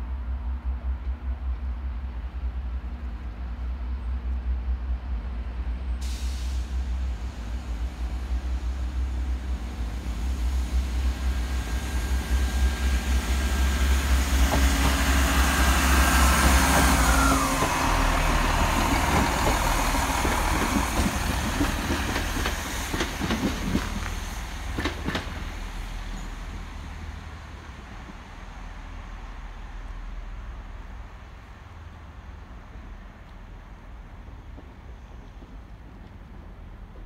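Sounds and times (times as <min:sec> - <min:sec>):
diesel train passing: 0:00.0 - 0:37.0
train whine dropping in pitch: 0:11.3 - 0:21.1
train wheel clicks: 0:18.8 - 0:25.4.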